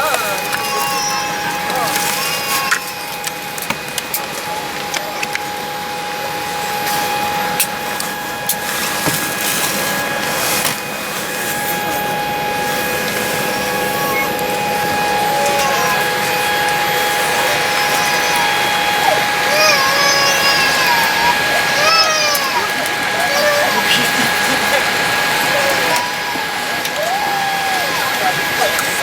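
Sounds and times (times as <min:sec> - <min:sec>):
air system hiss: 0:00.0 - 0:29.0
constant hum: 0:00.0 - 0:29.0
clicks and knocks of luggage: 0:08.5 - 0:12.1.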